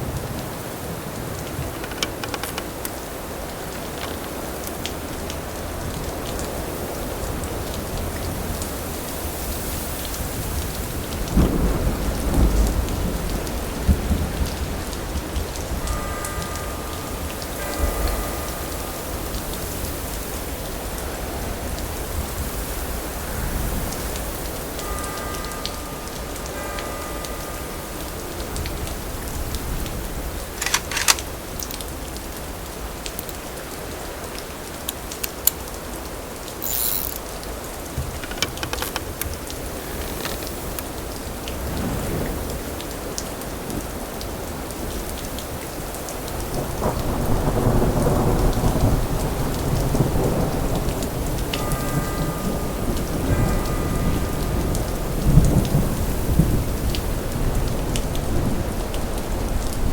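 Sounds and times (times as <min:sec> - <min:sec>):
steady rain falling: 0:00.0 - 0:59.9
sharp clicks: 0:01.7 - 0:02.8, 0:30.6 - 0:31.3, 0:36.6 - 0:37.3, 0:38.1 - 0:39.4
low thunder rumbling: 0:10.2 - 0:19.9, 0:46.4 - 0:59.9.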